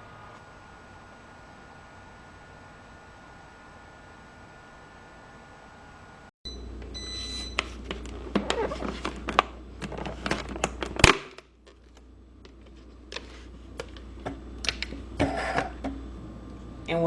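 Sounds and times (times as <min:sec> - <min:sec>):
handling clicks and crinkling: 0:07.5 - 0:15.0
low hum: 0:11.6 - 0:17.0.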